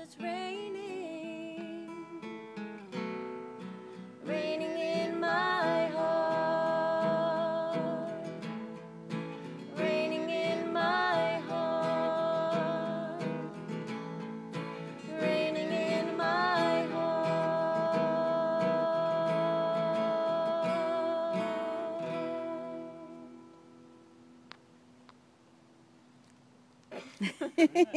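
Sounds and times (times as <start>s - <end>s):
wordless singing with vibrato: 0.0s - 2.4s, 4.1s - 8.8s, 9.4s - 13.8s, 14.8s - 23.7s
acoustic guitar strumming: 0.0s - 25.1s.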